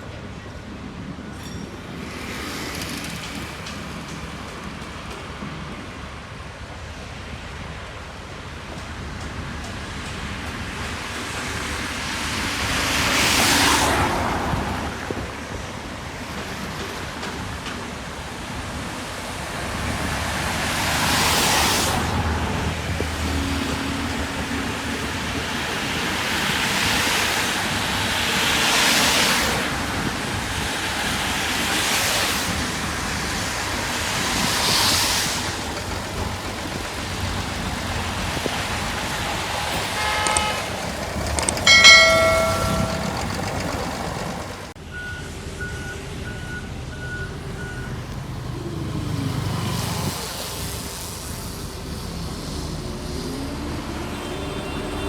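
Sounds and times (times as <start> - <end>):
road traffic passing: 9.0 - 55.0
vehicle horn honking: 39.8 - 40.9.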